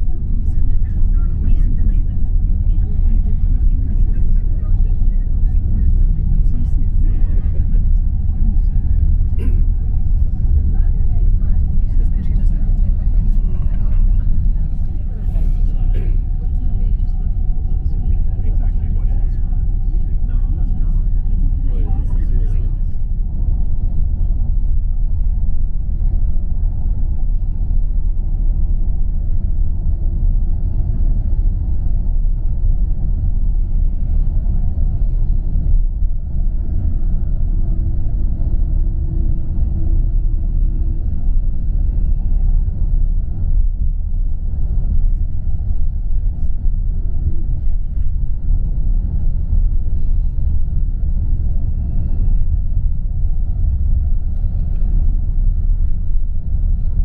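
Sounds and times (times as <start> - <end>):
coach engine and tyre noise: 0.0 - 57.0
faint hum: 0.0 - 57.0.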